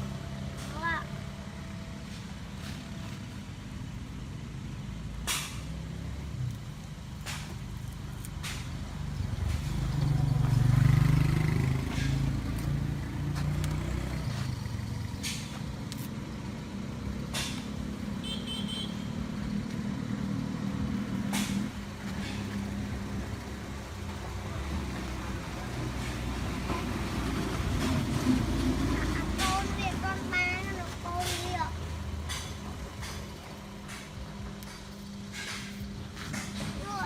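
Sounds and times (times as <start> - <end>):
vehicle engine running: 0.0 - 37.0.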